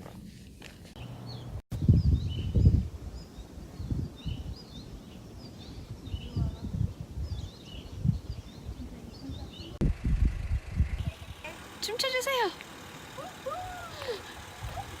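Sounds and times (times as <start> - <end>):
small birds chirping: 0.6 - 9.8, 10.8 - 12.8.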